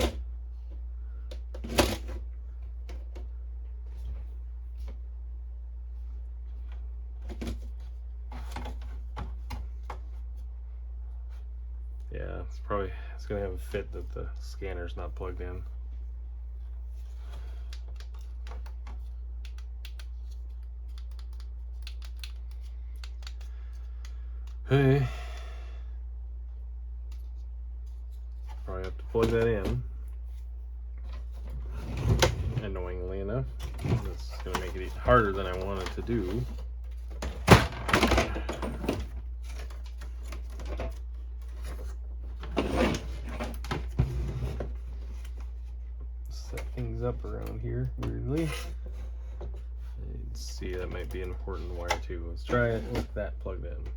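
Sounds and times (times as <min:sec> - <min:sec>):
steady low hum: 0:00.0 - 0:53.9
hands clicking plastic parts: 0:17.7 - 0:24.6.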